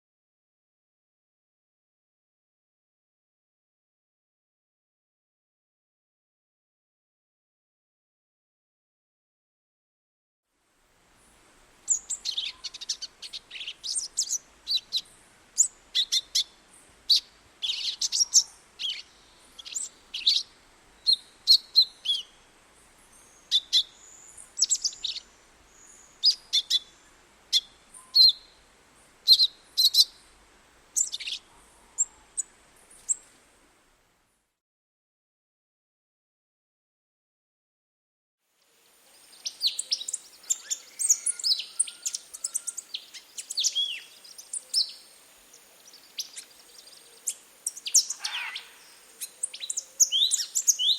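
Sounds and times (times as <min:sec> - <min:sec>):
small birds chirping: 0:11.2 - 0:33.4, 0:38.6 - 0:50.9.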